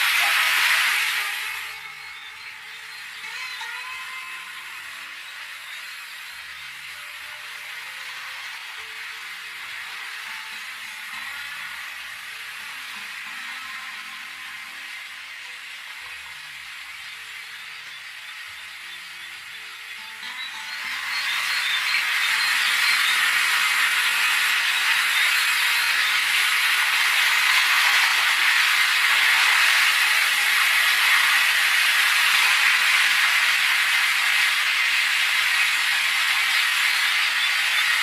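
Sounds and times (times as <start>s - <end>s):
flowing water hissing: 0.0s - 1.8s.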